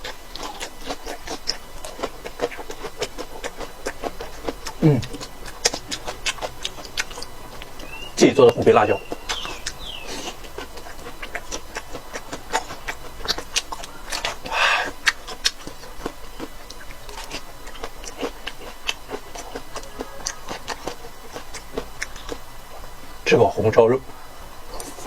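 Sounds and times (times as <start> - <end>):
wet chewing and mouth clicks: 0.0 - 23.2, 24.0 - 25.0.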